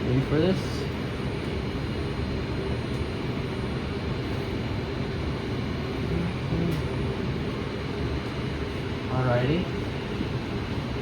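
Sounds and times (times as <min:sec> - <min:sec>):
light rail car interior hum: 0:05.2 - 0:11.0.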